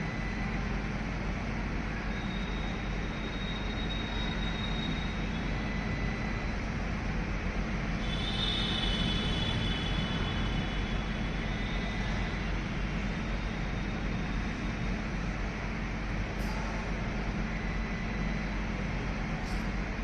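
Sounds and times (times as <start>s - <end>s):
high squeal: 2.1s - 5.3s, 8.0s - 12.4s.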